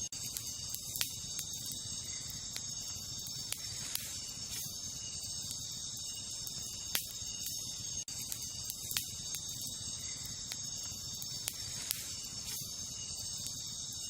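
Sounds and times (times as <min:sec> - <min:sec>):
campfire crackling and popping: 0:00.0 - 0:14.0
crickets chirring: 0:00.0 - 0:14.0.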